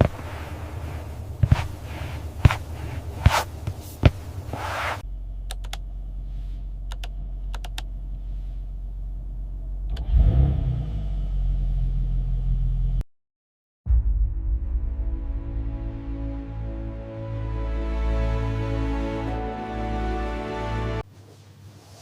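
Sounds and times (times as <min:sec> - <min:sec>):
low engine rumble: 0:00.0 - 0:13.0
engine starting and running: 0:04.2 - 0:13.0.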